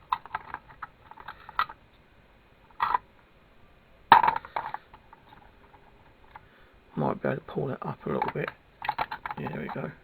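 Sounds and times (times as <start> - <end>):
lead weights knocking together: 4.1 - 4.9.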